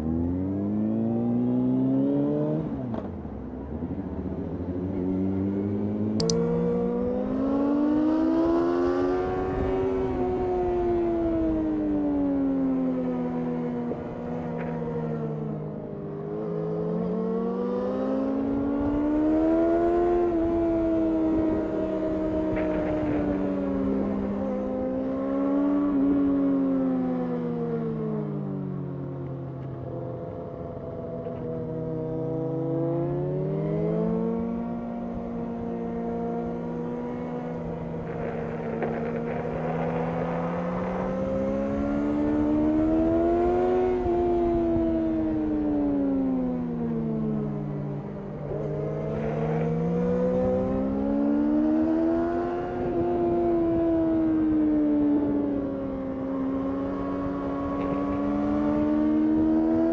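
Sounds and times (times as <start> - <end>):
wind noise: 18.9 - 24.8, 36.9 - 59.9.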